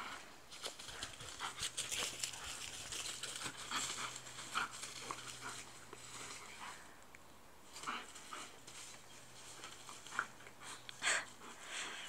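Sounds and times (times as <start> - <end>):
dogs rustling and crinkling: 0.5 - 6.8, 7.7 - 10.4.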